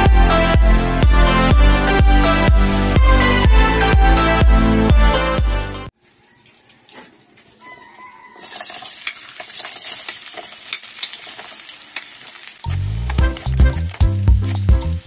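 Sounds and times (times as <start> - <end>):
music with heavy beat: 0.0 - 5.9, 12.8 - 15.0
carrots frying in hot oil: 8.4 - 15.0.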